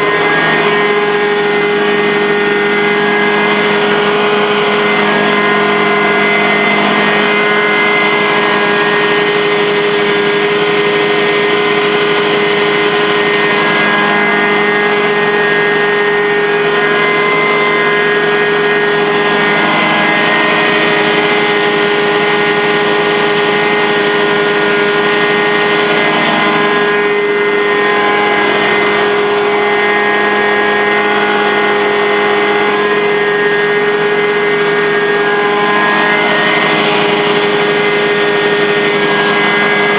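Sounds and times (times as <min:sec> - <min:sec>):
carpet cleaning machine drone: 0:00.0 - 0:39.9.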